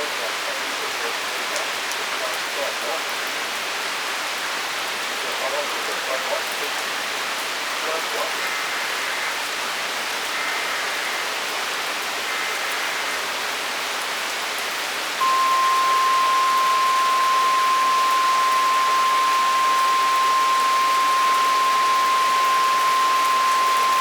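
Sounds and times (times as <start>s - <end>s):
heavy rain pouring: 0.0s - 24.0s
single-pitch alert tone: 15.2s - 24.0s.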